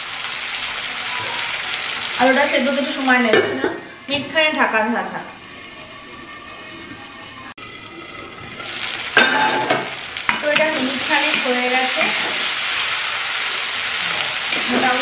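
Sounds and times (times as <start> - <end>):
food sizzling in hot oil: 0.0 - 15.0
metal spatula scraping a wok: 10.5 - 12.6.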